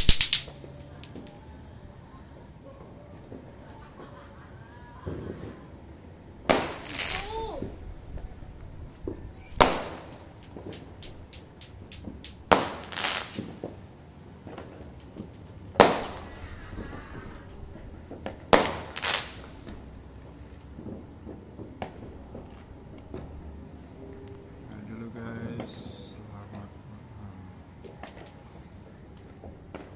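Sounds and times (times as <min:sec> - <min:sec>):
fireworks banging: 0:00.0 - 0:01.4, 0:05.0 - 0:23.7, 0:24.7 - 0:26.8, 0:29.0 - 0:29.9
fireworks crackling: 0:00.0 - 0:01.4, 0:05.0 - 0:29.9
small pops: 0:00.0 - 0:01.4, 0:09.6 - 0:13.8
cricket chirping: 0:00.0 - 0:29.9.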